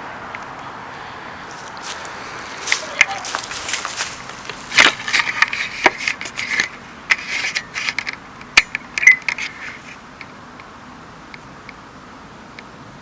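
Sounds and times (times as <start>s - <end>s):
equipment clicking and rattling: 1.8s - 10.3s.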